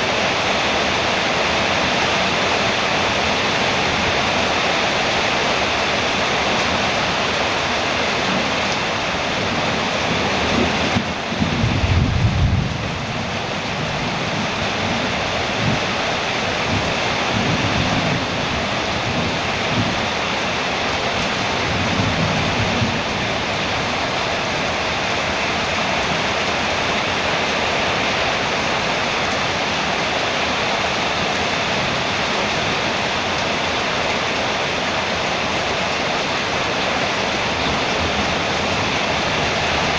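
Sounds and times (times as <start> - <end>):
heavy rain on a metal roof: 0.0 - 39.9
thunder rumbling: 8.4 - 25.4.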